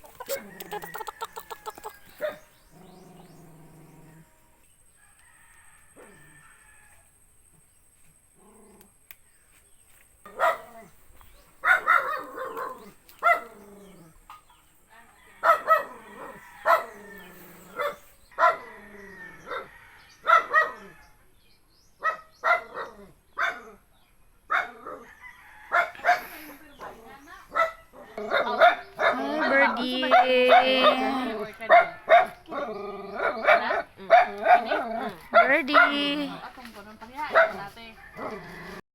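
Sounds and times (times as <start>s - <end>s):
dog barking: 2.2s - 2.5s, 10.3s - 10.9s, 11.6s - 13.6s, 15.4s - 18.7s, 19.5s - 20.8s, 22.0s - 23.7s, 24.5s - 25.0s, 25.7s - 29.3s, 31.6s - 36.4s, 37.3s - 38.4s.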